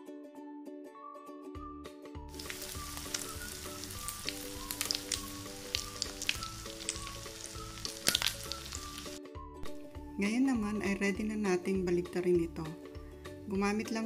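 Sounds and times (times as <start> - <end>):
soft background music: 0.0 - 14.0
omelette sizzling in oil: 2.3 - 9.2
crackling oil pops: 7.8 - 8.4.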